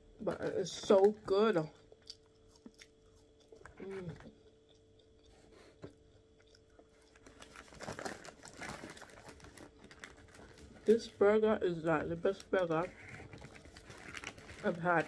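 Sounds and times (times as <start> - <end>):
chewing soggy chips: 0.7 - 11.2, 12.2 - 15.0
voice humming: 3.8 - 4.3
hand rustling paper: 12.7 - 15.0.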